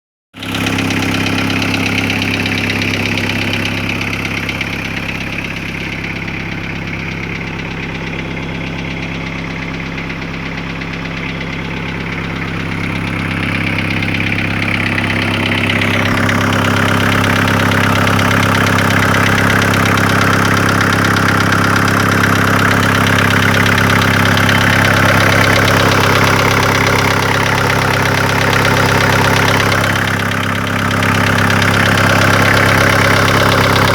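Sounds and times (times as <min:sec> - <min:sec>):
diesel engine idling with knock: 0:00.4 - 0:33.9.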